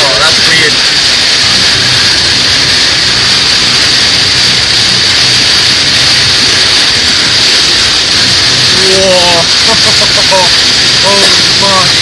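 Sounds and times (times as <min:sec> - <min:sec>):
heavy rain on car roof: 0:00.0 - 0:12.0.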